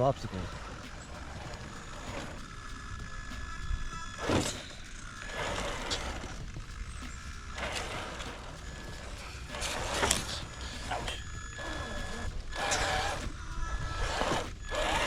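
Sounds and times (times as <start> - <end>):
rushing noise bursts: 0.0 - 15.0
small electric motor whining: 0.0 - 15.0.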